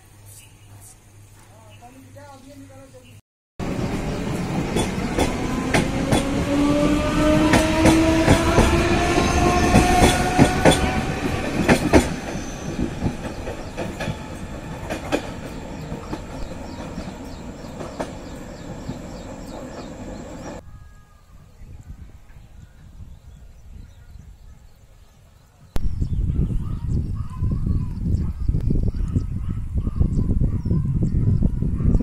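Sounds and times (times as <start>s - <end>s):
electric train whine rising: 3.6s - 20.6s.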